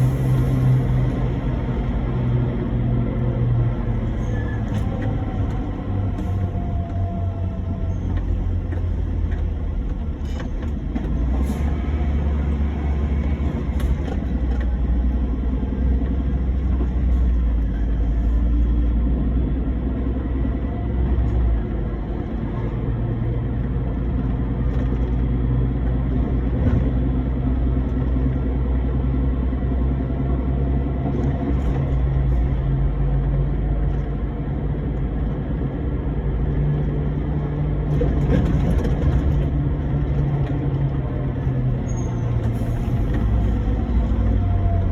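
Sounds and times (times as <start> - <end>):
truck engine with road noise: 0.0 - 44.9.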